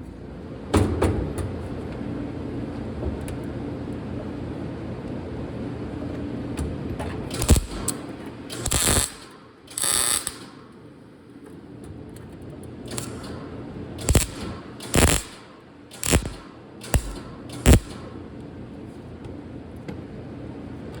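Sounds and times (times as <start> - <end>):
sharp metal knocks: 14.0 - 18.1.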